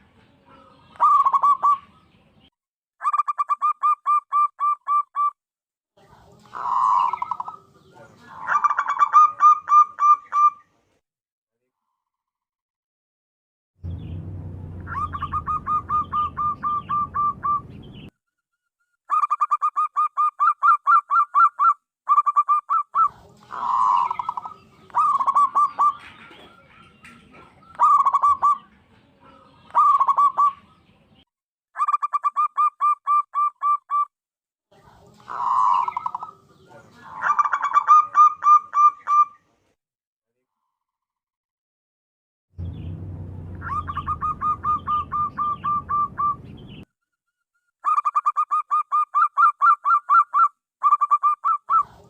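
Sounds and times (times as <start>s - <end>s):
dove cooing: 0.3s - 2.0s, 6.4s - 10.6s, 14.9s - 17.7s, 22.2s - 30.8s, 35.2s - 39.3s, 43.6s - 46.4s
low hum: 13.8s - 18.1s, 42.6s - 46.8s.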